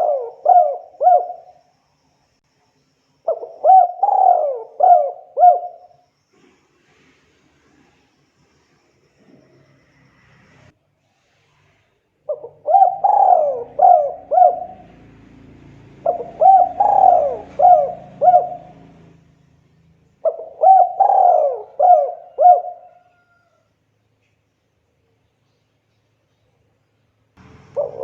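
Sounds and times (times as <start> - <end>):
dove cooing: 0.0 - 1.6, 3.3 - 6.0, 12.3 - 19.2, 20.2 - 23.5, 27.4 - 28.0.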